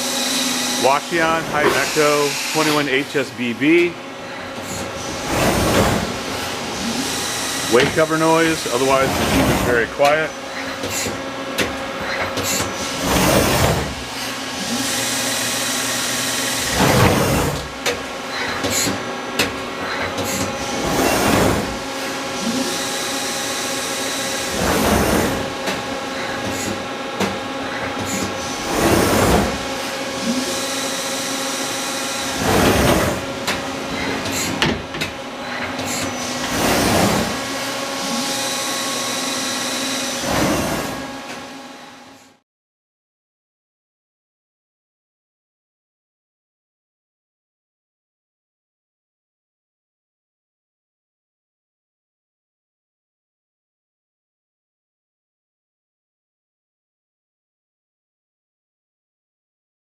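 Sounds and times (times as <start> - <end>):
lathe humming: 0.0 - 12.0, 19.0 - 42.0
way covers sliding and rattling: 4.5 - 14.8, 16.6 - 22.9, 24.3 - 41.5.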